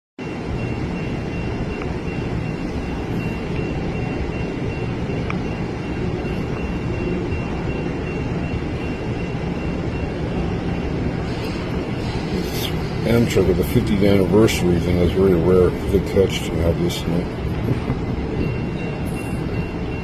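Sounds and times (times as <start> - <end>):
faint high whine: 0.2 - 20.0
vehicle low rumble: 0.2 - 20.0.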